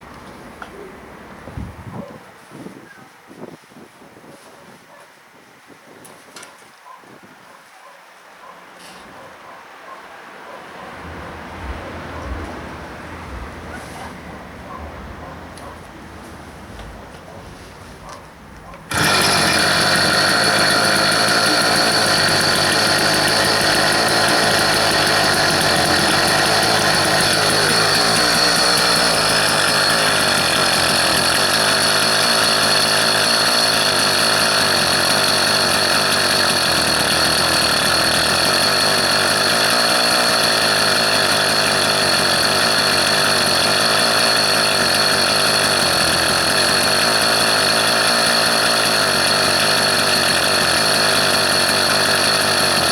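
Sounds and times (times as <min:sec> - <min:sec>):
engine running: 0:10.9 - 0:17.2, 0:18.7 - 0:52.9.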